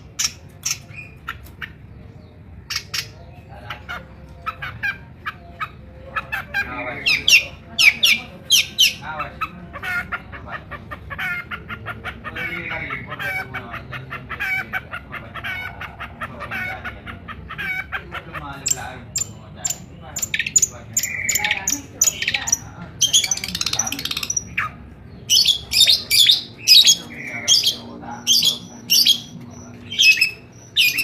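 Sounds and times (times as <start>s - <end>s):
shrike singing: 4.5s - 10.0s, 18.6s - 31.0s.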